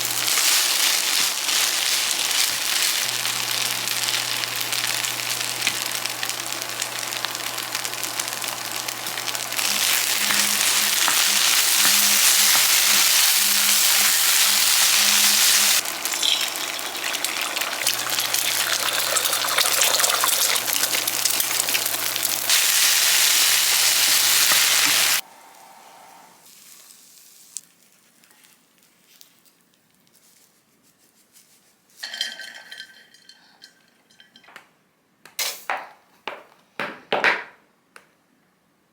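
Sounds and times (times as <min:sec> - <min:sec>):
food sizzling in a pan: 0:00.0 - 0:25.2, 0:26.4 - 0:27.9
kitchenware clinking: 0:09.0 - 0:22.6, 0:32.0 - 0:34.6.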